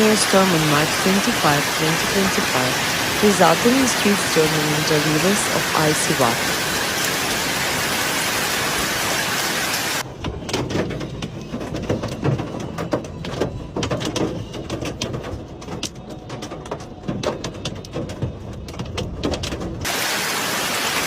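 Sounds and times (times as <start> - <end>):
hail and rain hissing: 0.0 - 21.0
hailstones clattering on hard surfaces: 10.3 - 20.8.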